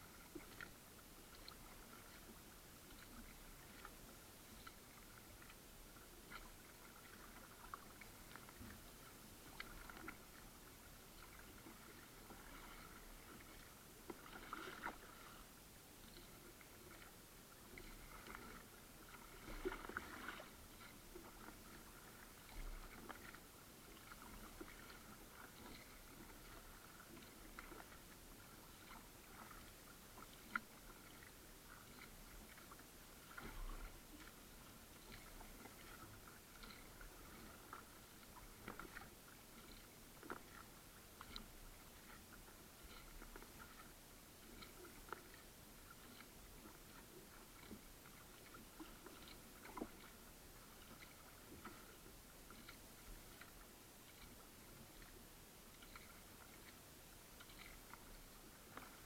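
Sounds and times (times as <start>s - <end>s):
light ticks against hull: 0.0s - 59.0s
paddle splashing in water: 0.0s - 59.0s.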